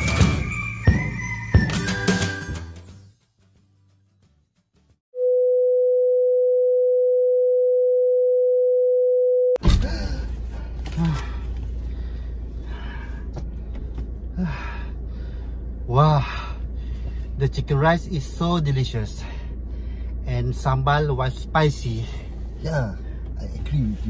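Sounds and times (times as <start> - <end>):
car cabin rumble: 9.6 - 19.0
men talking: 20.3 - 24.0.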